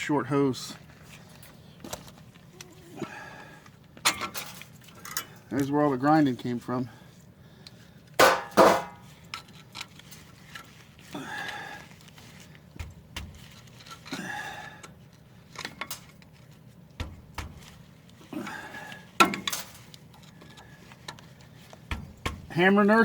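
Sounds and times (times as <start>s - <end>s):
metal tools clanking: 4.0s - 5.8s
sharp metal knocks: 8.2s - 9.0s.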